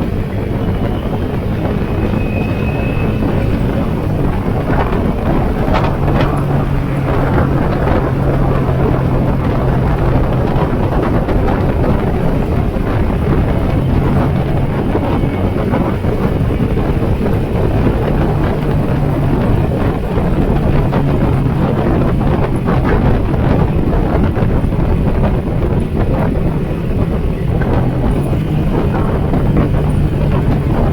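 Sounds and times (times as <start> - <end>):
motorcycle engine cruising: 0.0 - 30.9
wind on microphone: 0.0 - 30.9.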